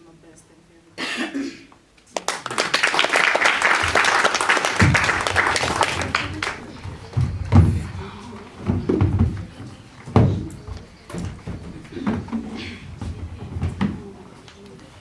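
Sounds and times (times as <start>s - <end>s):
audience applauding: 2.1s - 6.9s.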